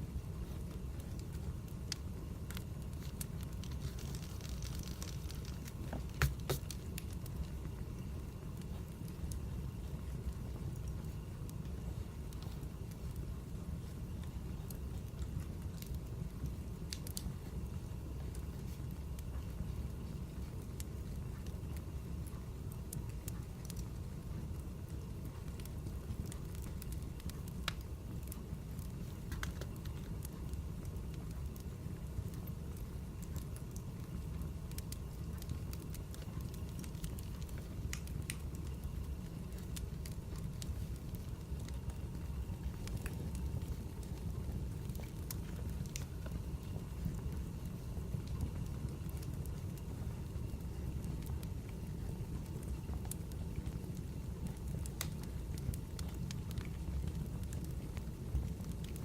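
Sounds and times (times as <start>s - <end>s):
fire crackles and pops: 0.0s - 59.0s
wood fire rumbling: 0.0s - 59.0s.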